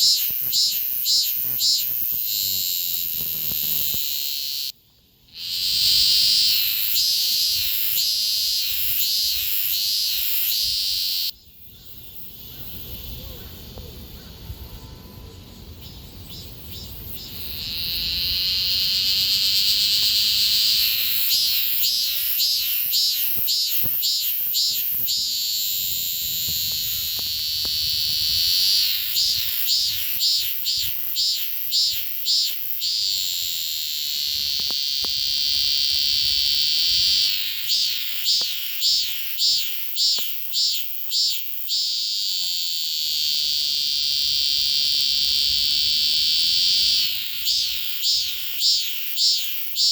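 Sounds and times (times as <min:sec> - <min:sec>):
cicada buzzing: 0:00.0 - 0:14.2, 0:15.7 - 0:49.9.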